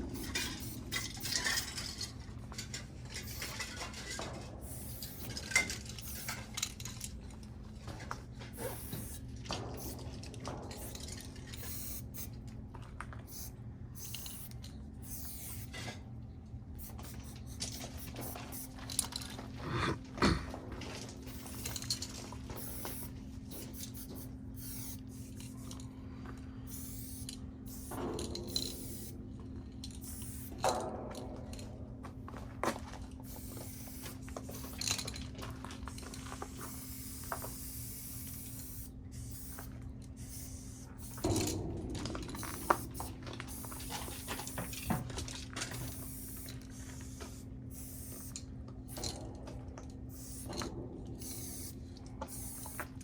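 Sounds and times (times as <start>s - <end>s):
spray paint cans hissing: 0.0s - 2.0s, 3.1s - 3.7s, 4.6s - 7.0s, 8.5s - 10.1s, 10.7s - 12.4s, 13.2s - 15.8s, 16.8s - 20.0s, 21.2s - 25.8s, 26.7s - 29.2s, 29.9s - 30.6s, 33.2s - 35.1s, 35.9s - 41.6s, 42.2s - 45.1s, 45.7s - 49.1s, 50.1s - 53.0s
steady low hum: 0.0s - 53.0s.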